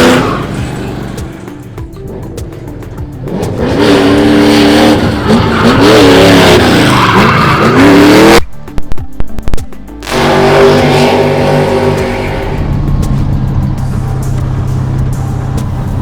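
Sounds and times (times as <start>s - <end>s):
car engine revving: 0.0s - 8.5s, 9.9s - 16.0s
tyres skidding: 0.0s - 8.5s, 9.9s - 16.0s.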